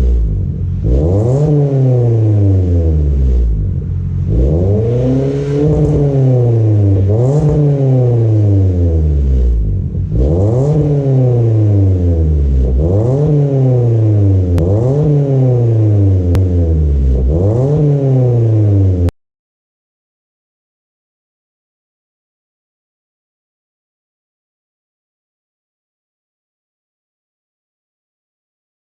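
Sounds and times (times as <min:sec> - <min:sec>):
car engine revving: 0:00.0 - 0:19.1.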